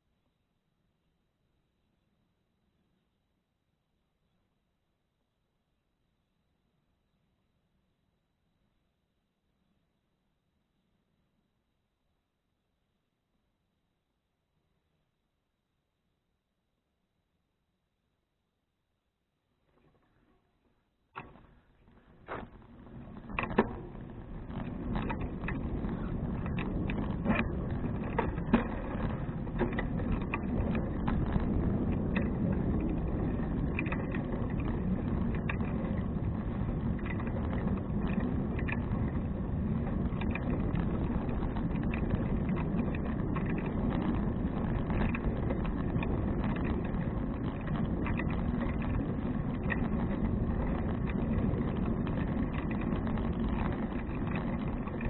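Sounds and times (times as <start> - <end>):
bicycle tyre and road noise: 21.2 - 55.0
bike clicks and rattles: 21.2 - 55.0
wind on camera microphone: 21.4 - 55.0.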